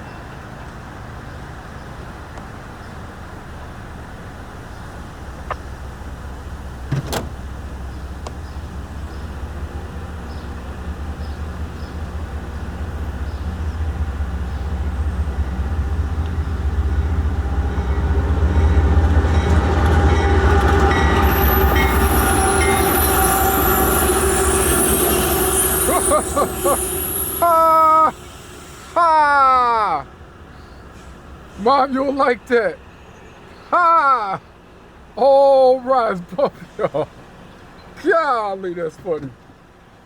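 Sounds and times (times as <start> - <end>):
freight train rumbling past: 0.0 - 33.6
steady ringing tones: 8.5 - 29.0
high thin tones: 19.5 - 29.2.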